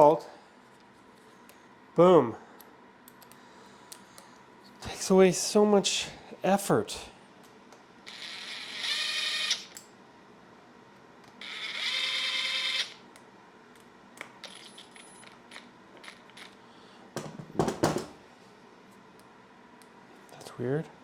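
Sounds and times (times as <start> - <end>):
cordless drill motor whine: 8.1 - 9.8, 11.4 - 13.0
sharp knock: 17.2 - 18.2.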